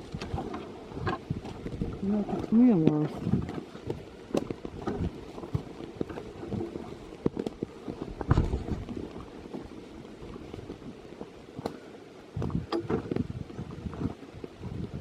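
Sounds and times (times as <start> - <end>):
rustling of gear and clothing: 0.0 - 15.0.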